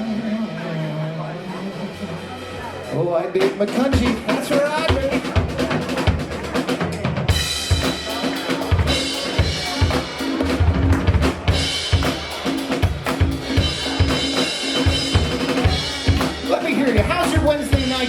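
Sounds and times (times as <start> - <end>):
live band playing: 0.0 - 18.0.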